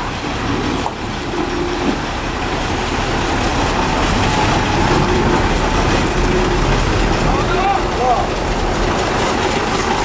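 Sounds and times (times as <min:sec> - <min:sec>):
truck diesel engine rumble: 0:00.0 - 0:10.0.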